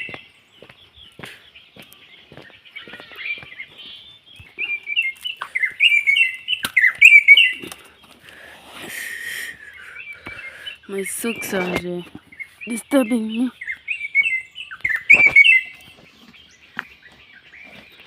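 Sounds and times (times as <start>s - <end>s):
birds chirping and singing: 0.0s - 18.0s
loud quick bird chirps: 4.6s - 7.7s, 9.1s - 17.8s.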